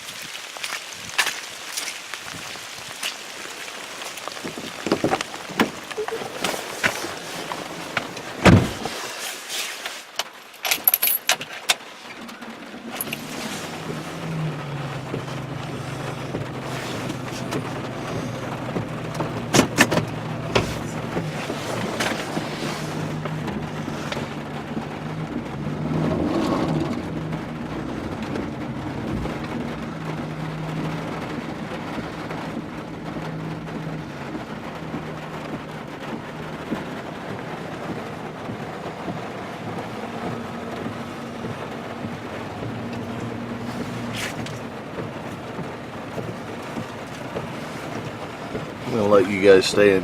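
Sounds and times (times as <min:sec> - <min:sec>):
rain: 0:00.0 - 0:50.0
road noise: 0:00.0 - 0:50.0
truck engine running: 0:12.0 - 0:50.0.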